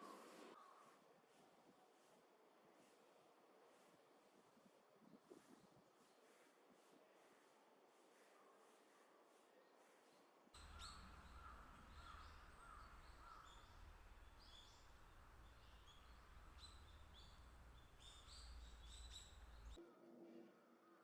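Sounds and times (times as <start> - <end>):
songbirds chirping: 10.6 - 19.8.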